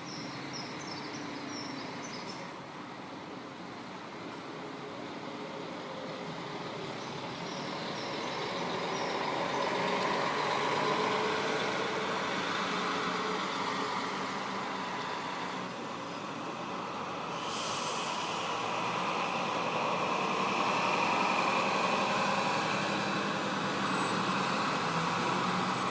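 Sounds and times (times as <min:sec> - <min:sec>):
diesel coach engine running: 0:05.0 - 0:25.9
steady hiss: 0:17.3 - 0:18.9.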